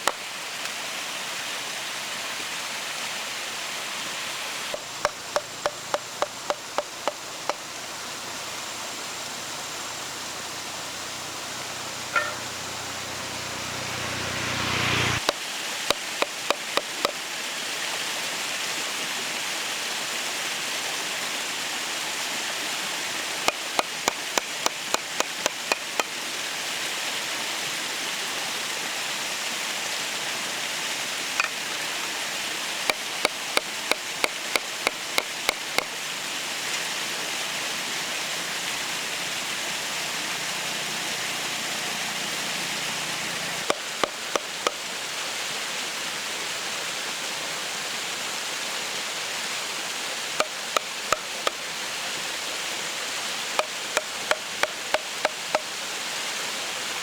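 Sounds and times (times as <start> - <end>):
steady hiss: 0.0 - 40.5
sharp chopping strokes: 4.7 - 7.6, 14.5 - 17.2, 23.5 - 26.2, 32.9 - 36.0, 43.6 - 44.8, 50.4 - 51.6, 53.6 - 55.7.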